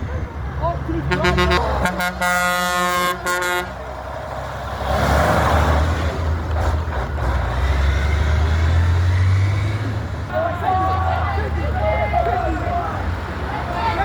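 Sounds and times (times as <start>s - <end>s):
engines idling: 0.0s - 14.0s
car horn blaring: 1.0s - 3.9s
car pulling away: 3.6s - 14.0s.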